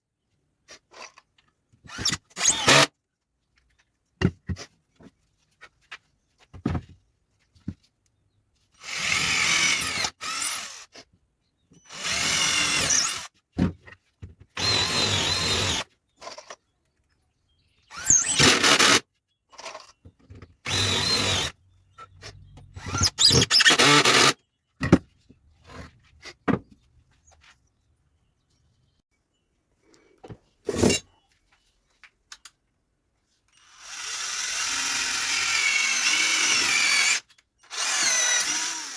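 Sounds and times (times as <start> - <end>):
power drill running: 1.9 - 2.9, 8.8 - 10.8, 11.9 - 13.3, 14.6 - 15.8, 17.9 - 19.0, 20.7 - 21.6, 22.8 - 24.4, 33.6 - 38.9.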